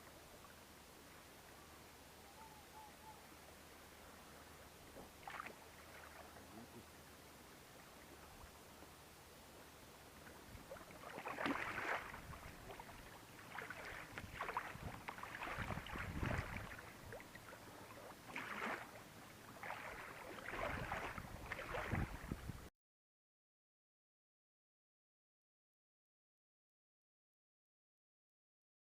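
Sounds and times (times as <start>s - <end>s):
water splashing around kayak: 3.3s - 22.7s.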